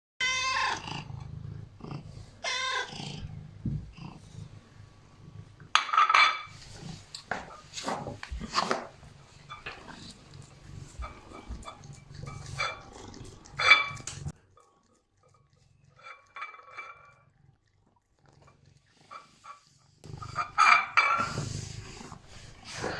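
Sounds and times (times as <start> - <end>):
cat meowing: 0.2 - 1.0, 2.4 - 3.0
cat chewing and smacking: 9.0 - 20.5.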